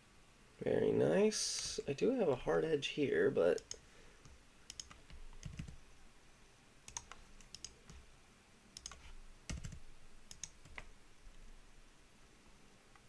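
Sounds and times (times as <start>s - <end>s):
keyboard and mouse clicks: 3.6s - 5.8s, 6.9s - 8.0s, 8.8s - 10.9s.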